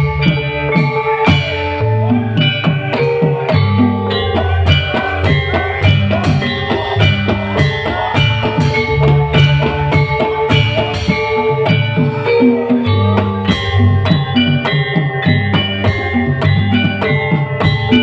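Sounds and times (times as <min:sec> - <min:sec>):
drums and bass beat: 0:00.0 - 0:18.0
live band music: 0:00.0 - 0:18.0.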